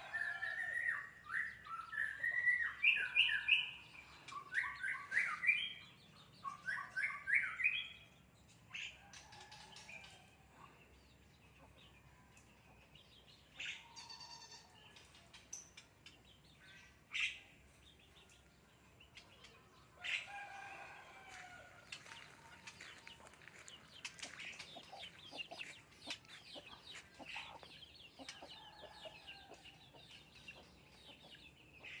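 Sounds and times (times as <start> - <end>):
birds calling: 19.1 - 32.0.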